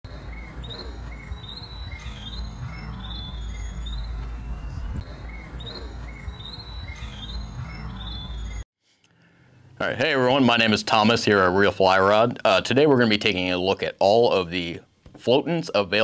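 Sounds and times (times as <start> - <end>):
small birds chirping: 0.1 - 8.6
steady low rumble: 2.0 - 6.4.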